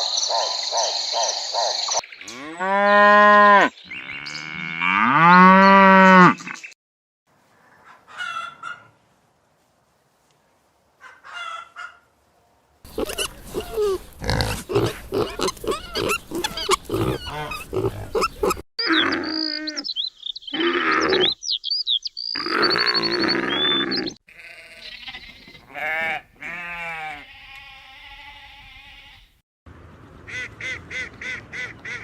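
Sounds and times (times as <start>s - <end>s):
pigs grunting: 12.9s - 19.4s
high animal chirping: 12.9s - 24.2s.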